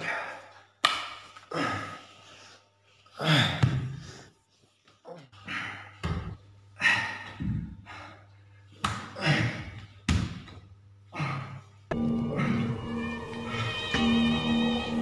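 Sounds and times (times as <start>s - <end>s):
person breathing hard: 5.1s - 9.9s, 11.1s - 14.0s.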